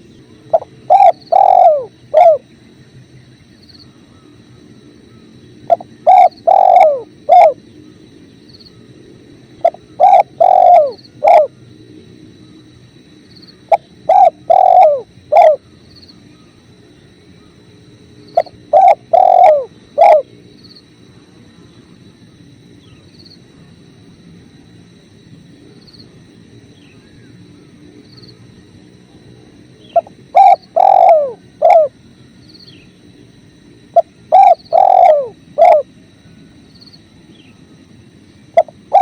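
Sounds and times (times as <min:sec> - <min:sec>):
dove cooing: 0:00.0 - 0:02.5, 0:05.7 - 0:07.6, 0:09.6 - 0:11.6, 0:13.7 - 0:15.7, 0:18.3 - 0:20.4, 0:29.8 - 0:32.0, 0:33.9 - 0:35.9, 0:38.5 - 0:39.0.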